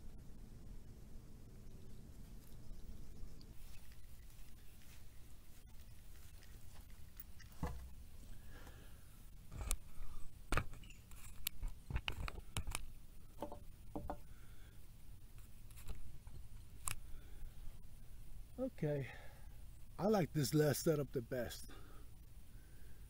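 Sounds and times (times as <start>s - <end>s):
clicks and knocks on wooden table: 13.4s - 14.2s.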